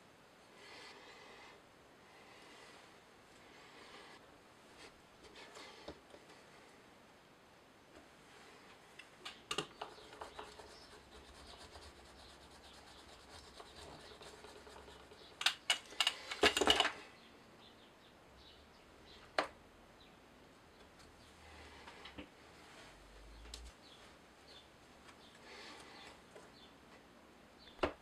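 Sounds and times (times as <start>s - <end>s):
rubbing scrape: 9.8s - 15.4s.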